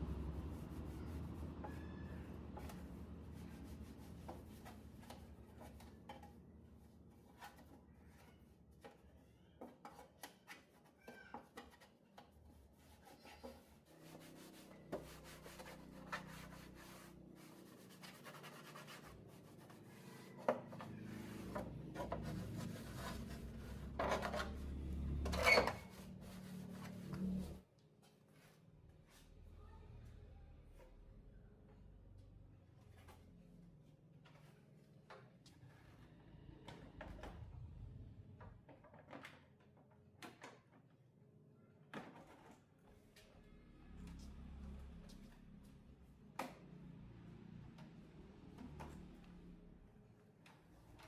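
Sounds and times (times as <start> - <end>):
hands scraping hard parts: 7.2 - 27.6.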